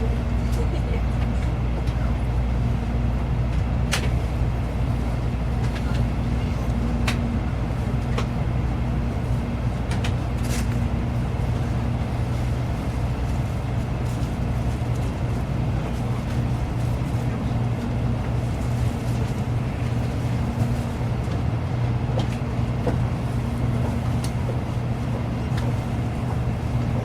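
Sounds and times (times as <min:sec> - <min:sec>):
train interior rumble and hum: 0:00.0 - 0:27.0.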